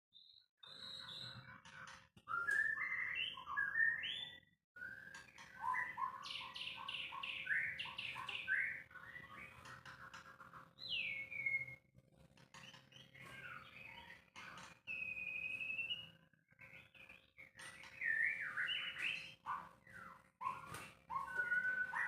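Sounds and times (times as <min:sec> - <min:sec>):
bird singing whistled phrases: 0:00.2 - 0:01.4, 0:02.3 - 0:09.4, 0:10.8 - 0:11.8, 0:14.9 - 0:16.2, 0:17.9 - 0:22.0.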